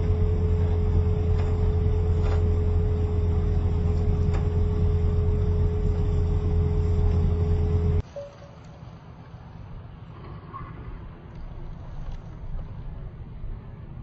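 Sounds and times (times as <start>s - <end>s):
factory machinery humming: 0.0s - 9.5s.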